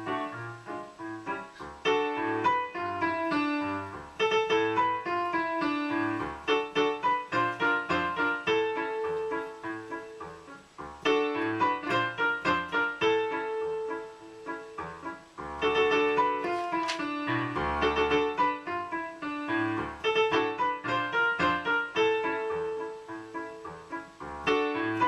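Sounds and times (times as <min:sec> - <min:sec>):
piano instrumental tune: 0:00.0 - 0:25.0.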